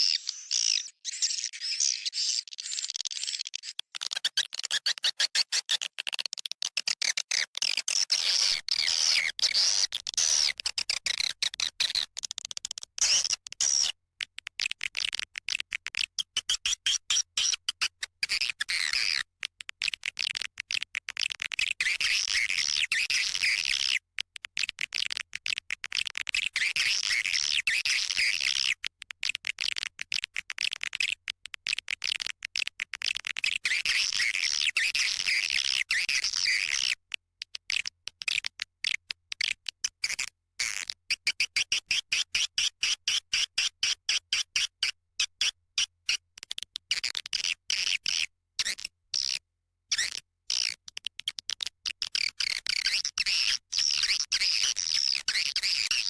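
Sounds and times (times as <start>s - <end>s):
swiftlet twittering calls: 0.0s - 3.7s
fast sparse clicking: 9.4s - 56.0s.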